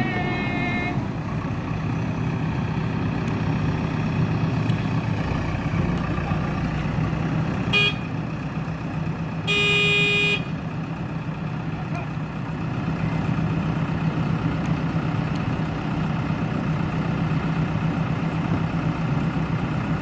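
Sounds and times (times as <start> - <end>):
vehicle horn toot: 0.0 - 1.0, 7.7 - 8.1, 9.5 - 10.5
diesel engine droning: 0.0 - 20.0.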